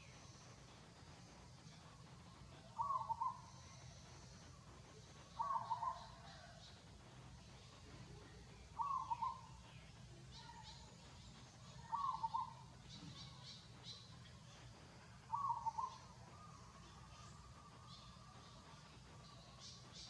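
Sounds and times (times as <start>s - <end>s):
faint high bird chirps: 2.2s - 6.8s, 7.4s - 20.0s
bird calling: 2.6s - 4.0s, 5.3s - 6.6s, 8.8s - 9.6s, 11.6s - 14.0s, 15.3s - 20.0s.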